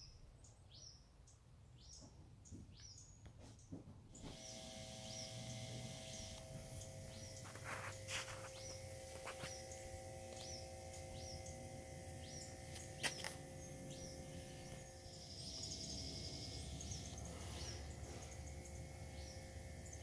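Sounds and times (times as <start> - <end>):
faint bird chirping: 4.2 - 20.0
bird trill: 4.4 - 20.0.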